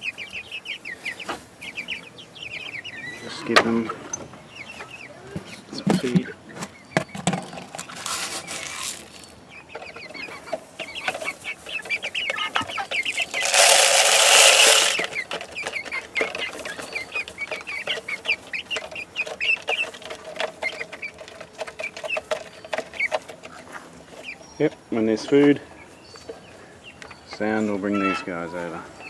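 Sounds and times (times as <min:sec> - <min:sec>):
chicks peeping and clucking: 0:00.0 - 0:29.0
loud rustling: 0:13.0 - 0:15.6.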